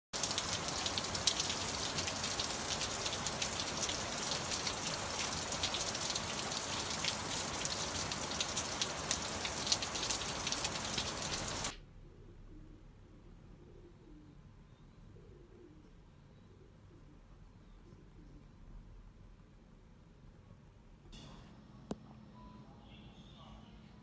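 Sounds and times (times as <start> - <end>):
steady rain falling: 0.2 - 11.8.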